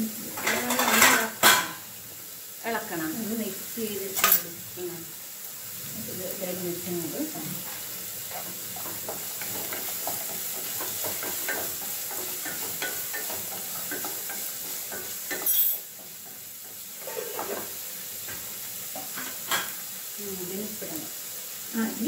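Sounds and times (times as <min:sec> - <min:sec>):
vegetables sizzling in a wok: 0:00.0 - 0:22.0
wooden spatula scraping wok: 0:06.0 - 0:19.8.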